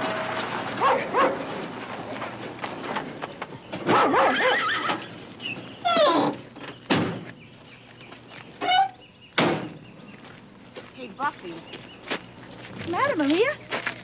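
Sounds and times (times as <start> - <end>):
dogs whining and yelping: 3.9 - 6.2.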